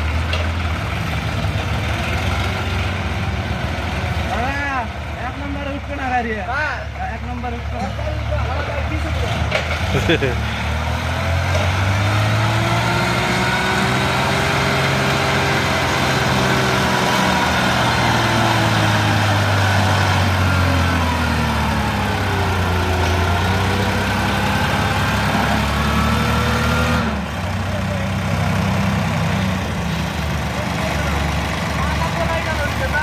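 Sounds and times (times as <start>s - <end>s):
tractor engine under load: 0.0s - 33.0s.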